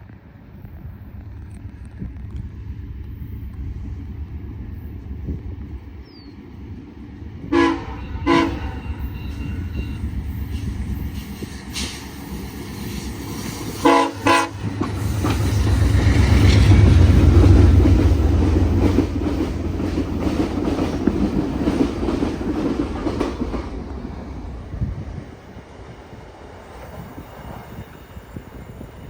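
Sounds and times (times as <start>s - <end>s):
train horn blasts: 7.4s - 10.2s, 13.7s - 15.4s.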